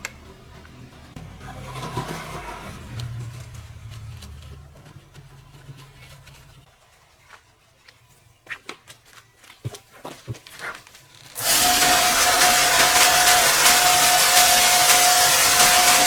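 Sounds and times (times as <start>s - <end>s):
cleaning machine hissing and whining: 11.4s - 16.0s.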